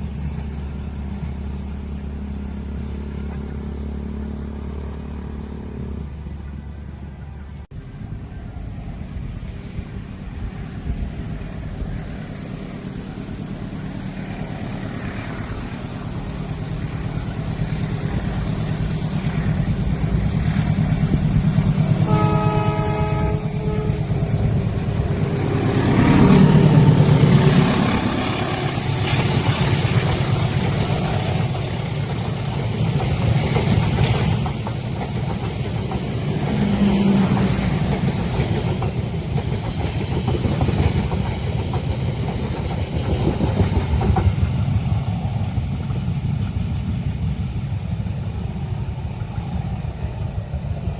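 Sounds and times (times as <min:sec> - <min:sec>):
train rumbling past: 0:00.0 - 0:50.9
train horn blast: 0:21.6 - 0:30.0.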